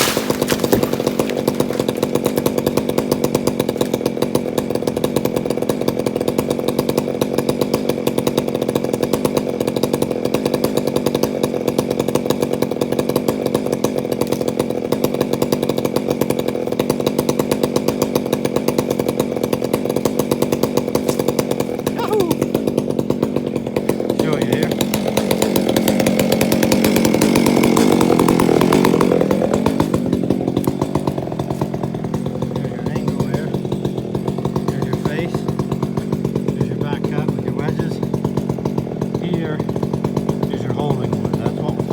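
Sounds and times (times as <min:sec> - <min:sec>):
chainsaw engine running: 0:00.0 - 0:41.9.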